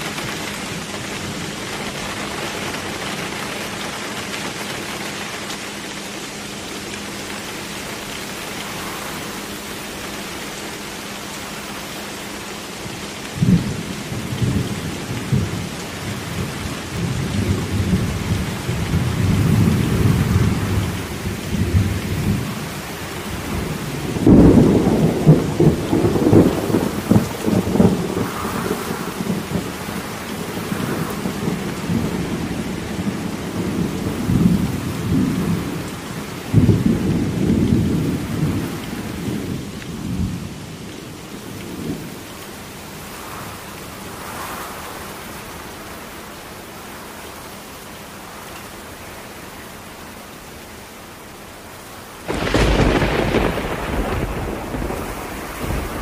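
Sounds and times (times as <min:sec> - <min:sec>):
steady rain: 0:00.0 - 0:56.0
rolling thunder: 0:13.3 - 0:40.6, 0:52.3 - 0:56.0.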